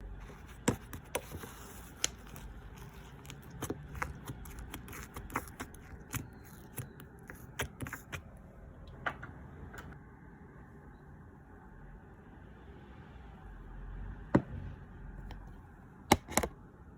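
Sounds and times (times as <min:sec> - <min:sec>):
soft handling noise: 0:00.1 - 0:10.0.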